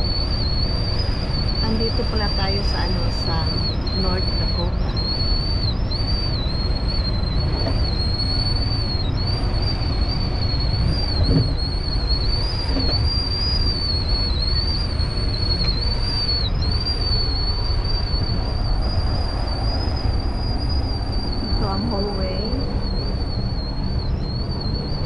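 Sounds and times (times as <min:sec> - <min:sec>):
high thin whistle: 0:00.0 - 0:25.0
train rumbling: 0:00.0 - 0:25.0.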